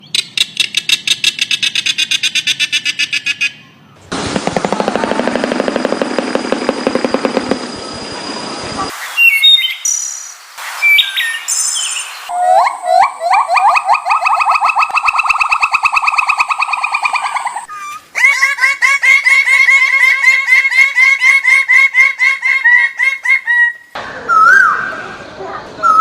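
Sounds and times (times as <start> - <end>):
whistled notes and pitch glides: 7.5 - 18.0
high bird chirps: 8.9 - 18.0.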